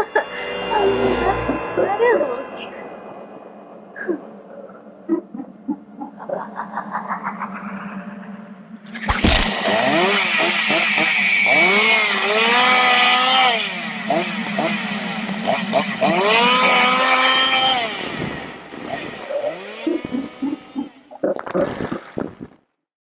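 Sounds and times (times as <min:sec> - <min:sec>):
chainsaw revving: 0:09.0 - 0:21.1.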